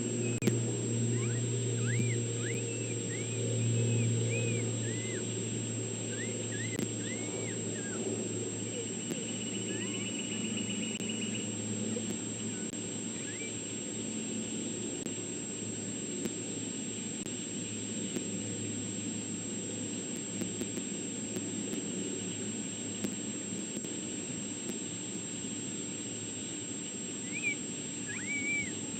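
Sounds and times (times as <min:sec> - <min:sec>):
steady low hum: 0:00.0 - 0:28.9
high animal chirps: 0:27.2 - 0:28.8.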